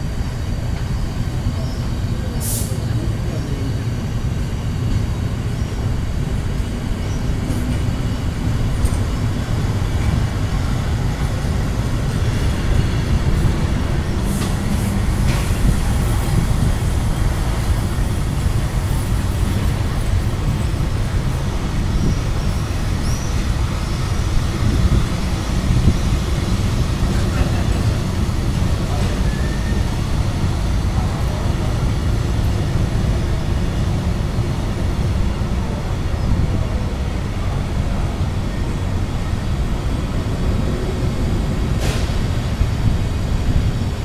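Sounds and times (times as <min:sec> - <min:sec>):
train wheels rumbling on track: 0:00.0 - 0:44.0.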